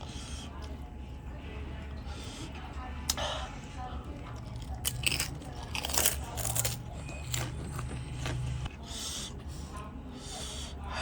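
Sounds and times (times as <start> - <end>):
chewing: 4.1 - 9.9.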